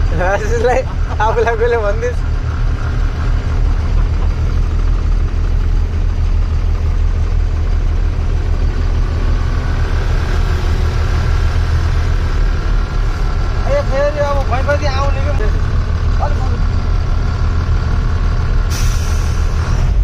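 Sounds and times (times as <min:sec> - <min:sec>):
truck engine rumbling: 0:00.0 - 0:20.0.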